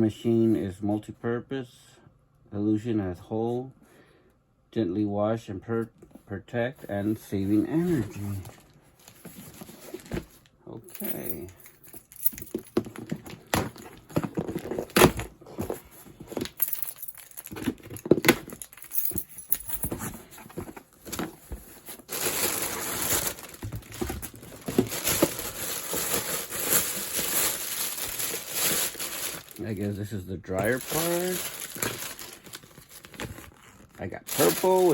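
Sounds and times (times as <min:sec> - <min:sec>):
plastic parts knocking and clattering: 0:11.0 - 0:29.6
plastic wrapping crinkling: 0:16.3 - 0:29.9, 0:30.6 - 0:34.9.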